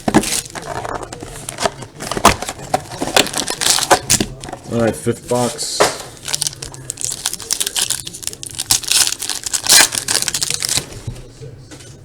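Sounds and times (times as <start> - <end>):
card wrapping torn and crinkled: 0.0 - 4.6, 6.1 - 11.0.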